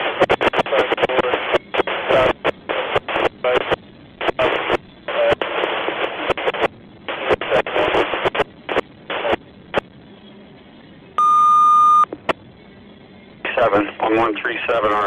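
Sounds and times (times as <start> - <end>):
radio static bursts: 0.0 - 9.8
high beep: 11.2 - 12.1.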